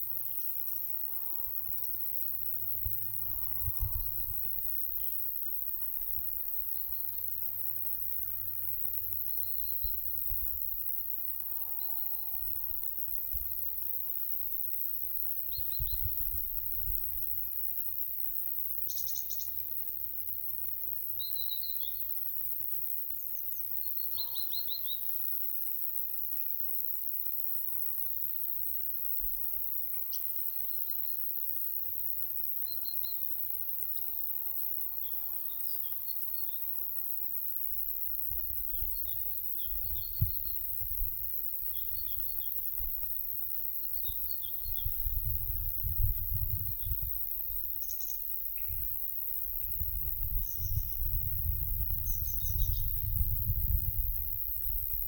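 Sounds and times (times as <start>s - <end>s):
wind rumble on microphone: 2.8s - 4.8s, 15.5s - 17.3s, 38.2s - 43.2s, 44.0s - 48.0s, 48.6s - 55.0s
high-pitched insect buzz: 8.0s - 17.4s, 18.8s - 20.1s, 21.1s - 22.2s, 23.2s - 25.4s, 32.6s - 55.0s.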